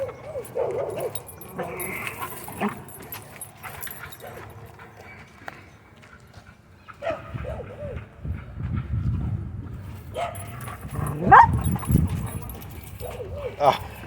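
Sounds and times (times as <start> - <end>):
dog growling and whining: 0.0 - 3.1, 10.7 - 12.5
dog yelping: 10.2 - 13.8.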